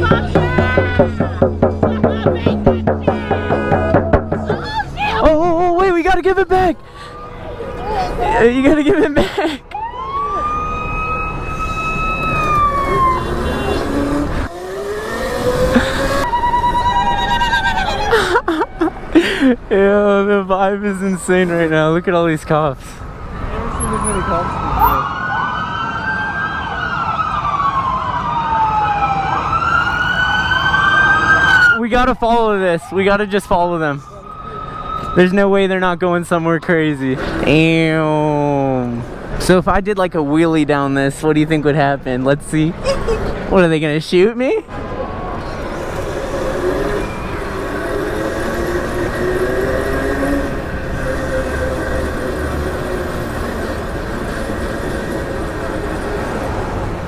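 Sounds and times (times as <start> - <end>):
tyre noise: 0.0 - 5.4
wind: 0.0 - 57.0
police sirens wailing: 7.0 - 19.3, 20.0 - 37.2, 44.7 - 57.0
electric motor whine: 12.6 - 16.3, 45.5 - 57.0.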